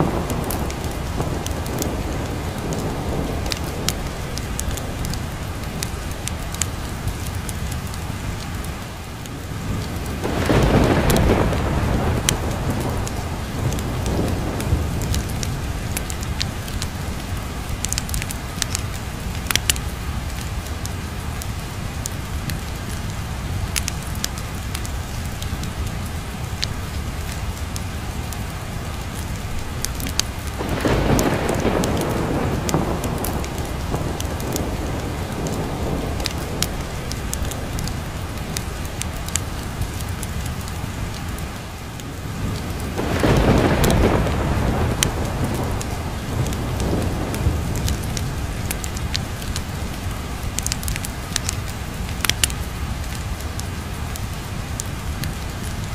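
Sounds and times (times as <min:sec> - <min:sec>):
steady rain: 0:00.0 - 0:55.9
rolls of thunder: 0:10.2 - 0:15.5, 0:30.6 - 0:38.3, 0:42.6 - 0:48.8.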